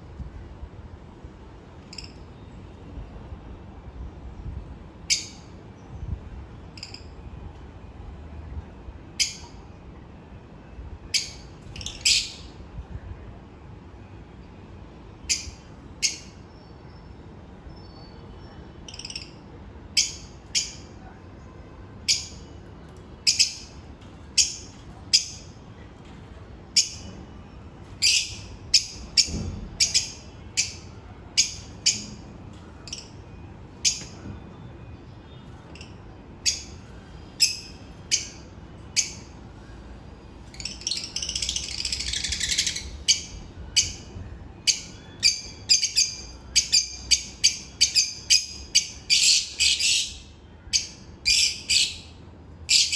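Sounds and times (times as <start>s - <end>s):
lovebirds chirping and chattering: 11.1s - 12.6s, 15.2s - 21.0s, 22.0s - 27.2s, 27.8s - 34.3s, 35.2s - 39.4s, 40.4s - 52.9s.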